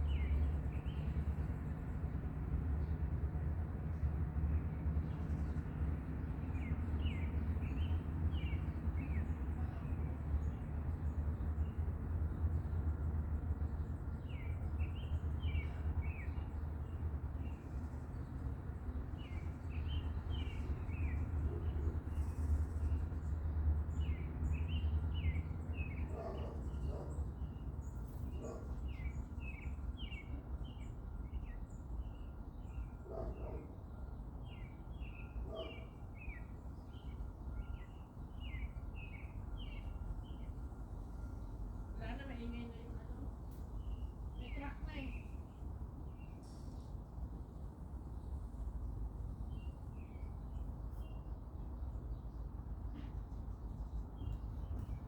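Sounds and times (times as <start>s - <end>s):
small birds chirping: 13.5s - 46.9s, 48.0s - 55.0s.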